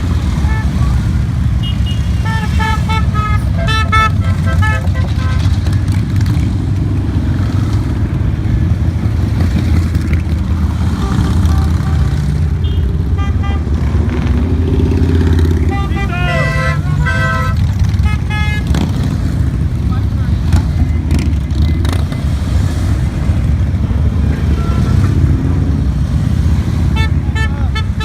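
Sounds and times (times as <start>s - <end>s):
motorcycle engines rumbling: 0.0s - 28.0s
short horn toots: 15.6s - 18.9s.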